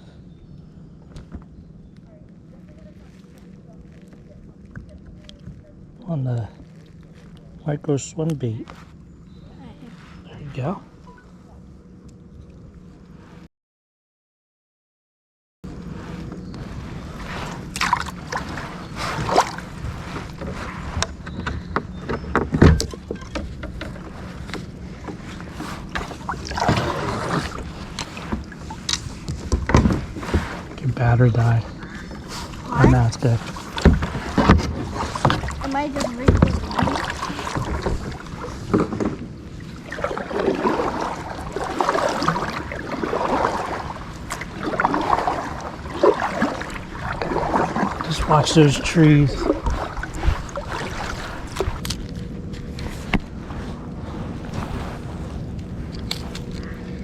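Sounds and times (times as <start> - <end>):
steady low hum: 0.0 - 13.5, 15.6 - 57.0
water lapping and splashing: 2.0 - 11.0, 15.8 - 57.0
kayak paddle strokes: 15.7 - 56.8.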